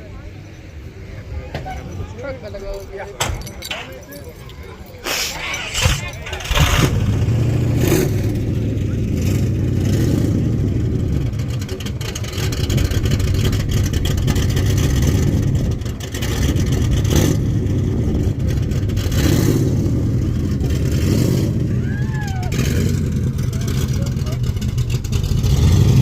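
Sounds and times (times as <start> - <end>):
car engine revving hard: 5.5 - 21.7, 22.5 - 26.0.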